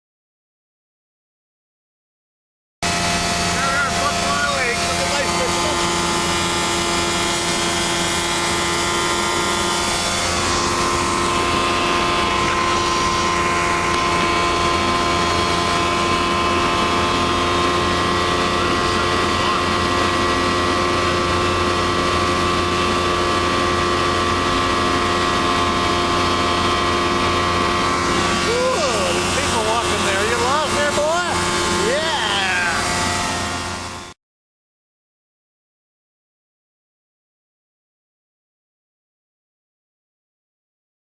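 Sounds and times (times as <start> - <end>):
light aircraft engine and propeller: 2.8 - 34.2.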